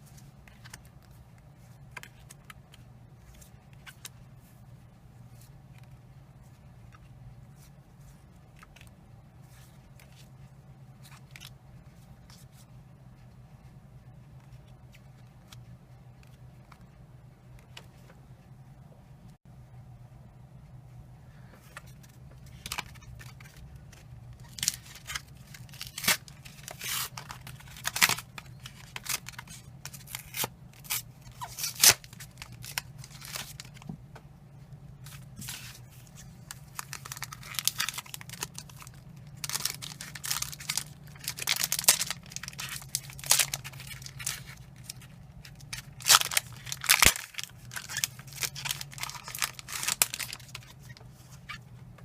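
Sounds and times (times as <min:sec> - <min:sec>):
foil wrappers tearing and crinkling: 0:24.4 - 0:33.8, 0:36.4 - 0:51.0.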